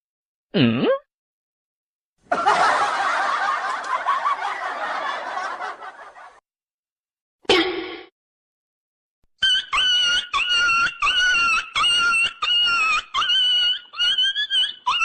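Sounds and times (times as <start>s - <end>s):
people laughing: 2.3s - 6.4s.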